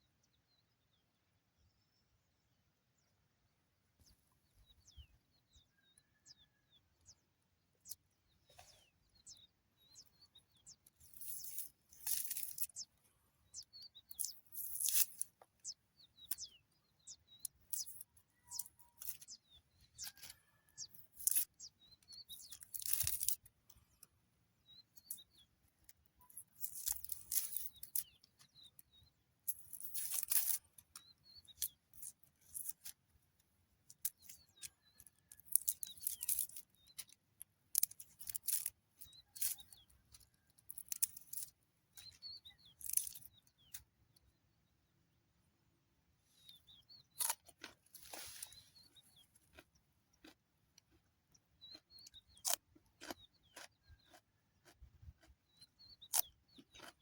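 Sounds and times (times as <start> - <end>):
birds chirping: 4.0 - 45.2, 46.2 - 57.0
rustling and crinkling: 11.0 - 12.9, 22.2 - 23.8, 26.3 - 28.8, 29.5 - 33.0, 35.3 - 43.8, 47.1 - 49.6
small clicks: 20.0 - 24.1, 29.5 - 44.3.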